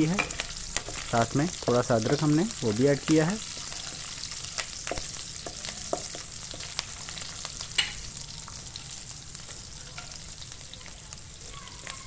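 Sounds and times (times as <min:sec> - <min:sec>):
wooden spatula stirring: 0:00.0 - 0:07.4
chillies sizzling in ghee: 0:00.0 - 0:12.0.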